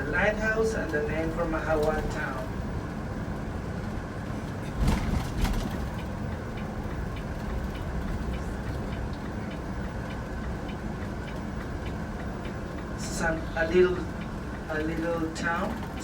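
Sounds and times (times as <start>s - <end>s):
vehicle road and engine rumble: 0.0s - 16.0s
light regular ticking: 5.9s - 16.0s.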